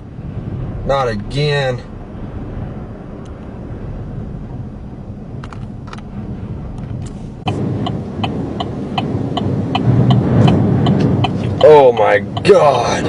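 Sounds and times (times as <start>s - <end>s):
strong wind buffeting car: 0.0s - 13.0s
regular ticking: 6.9s - 13.0s.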